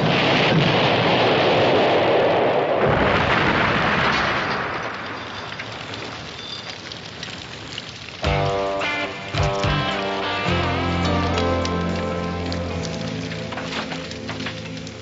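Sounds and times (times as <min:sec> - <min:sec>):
explosion rumble: 0:00.0 - 0:05.5
crackles: 0:00.0 - 0:15.0.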